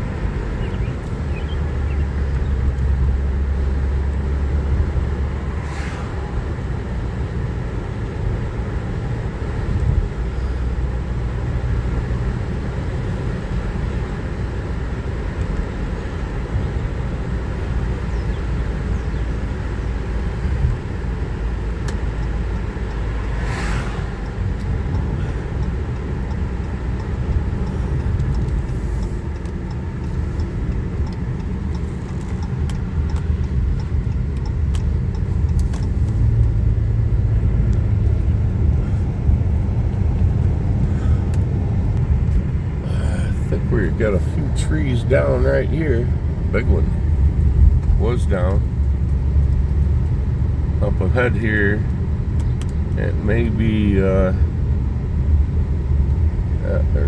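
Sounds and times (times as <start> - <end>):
car engine and tyres rumbling: 0.0 - 57.0
rushing whooshes: 5.3 - 7.0, 23.2 - 24.6.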